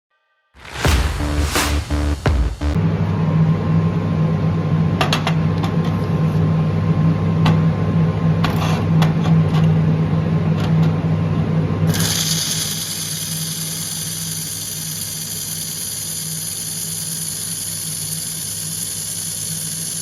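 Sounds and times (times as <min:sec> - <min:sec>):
sharp crackles: 0:00.6 - 0:02.8.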